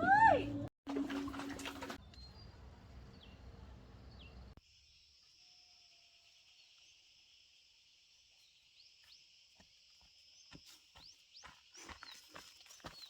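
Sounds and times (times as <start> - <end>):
insects chirring: 4.6 - 12.9.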